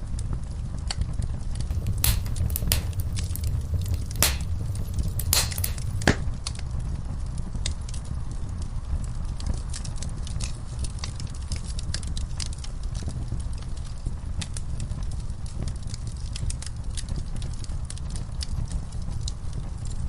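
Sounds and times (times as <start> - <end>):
wood fire crackling: 1.6 - 6.3.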